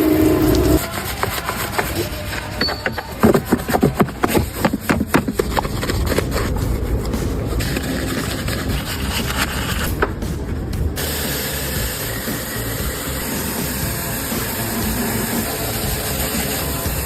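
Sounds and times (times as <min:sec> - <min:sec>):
humming: 0:00.0 - 0:05.3
hand tools clicking on car parts: 0:00.5 - 0:10.2.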